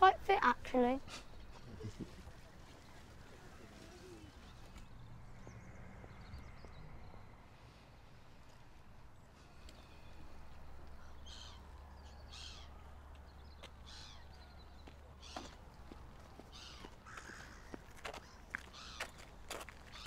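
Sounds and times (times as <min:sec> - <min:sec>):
birds calling harshly: 0:09.7 - 0:20.0.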